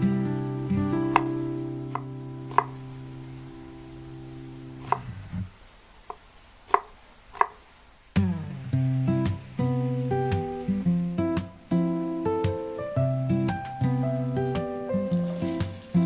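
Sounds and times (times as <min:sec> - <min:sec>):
knife striking cutting board: 0:01.1 - 0:01.3, 0:02.0 - 0:02.8, 0:04.8 - 0:05.1.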